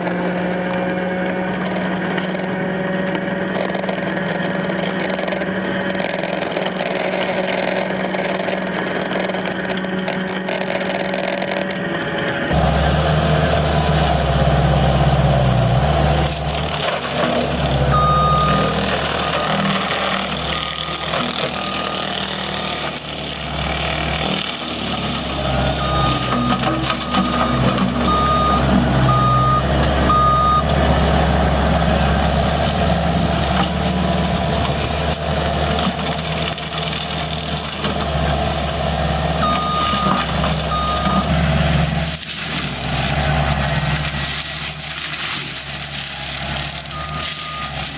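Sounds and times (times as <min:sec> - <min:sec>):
heavy machine engine running: 0:00.0 - 0:47.9
reversing alarm beeps: 0:17.9 - 0:22.4, 0:25.1 - 0:30.7, 0:39.4 - 0:41.3, 0:46.9 - 0:47.8.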